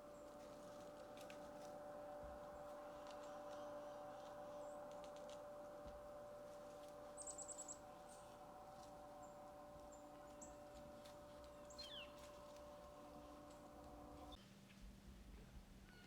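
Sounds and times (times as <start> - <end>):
songbirds chirping: 0.0 - 14.6
faint steady hum: 0.0 - 16.0.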